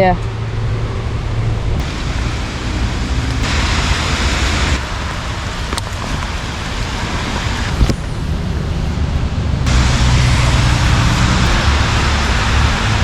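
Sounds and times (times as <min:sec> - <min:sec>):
rain hiss: 0:01.8 - 0:08.3
faint clicks: 0:03.3 - 0:08.2.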